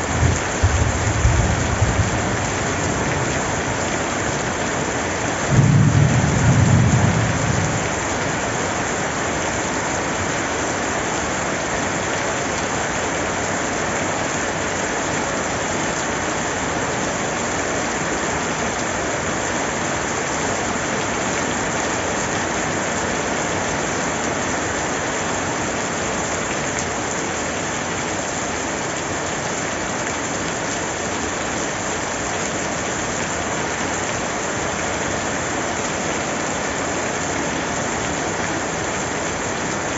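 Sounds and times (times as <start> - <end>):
dense rainfall hiss: 0.0 - 39.9
low thunder rumble: 0.2 - 3.0, 5.5 - 8.1.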